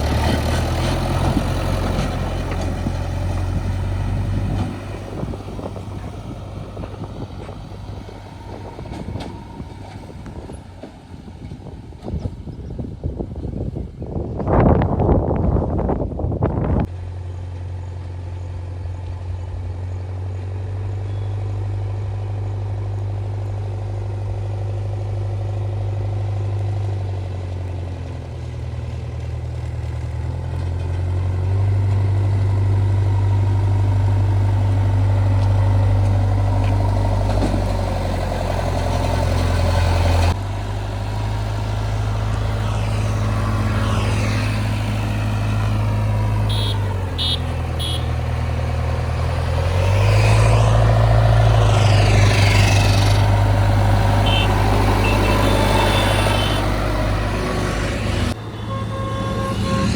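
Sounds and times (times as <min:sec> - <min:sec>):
diesel engine droning: 0:00.0 - 0:59.9.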